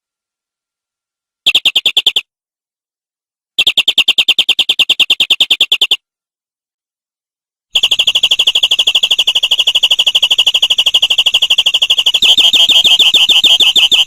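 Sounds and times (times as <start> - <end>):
canary trilling: 3.6 - 6.0, 7.8 - 14.0.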